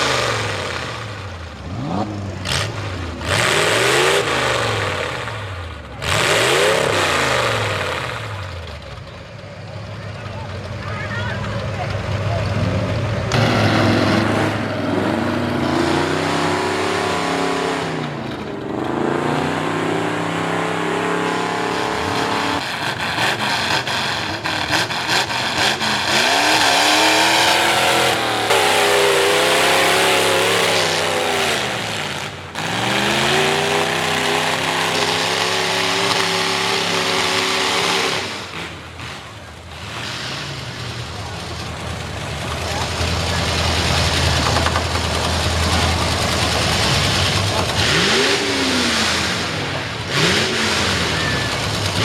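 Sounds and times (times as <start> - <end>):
truck engine revving: 0.0 - 52.0.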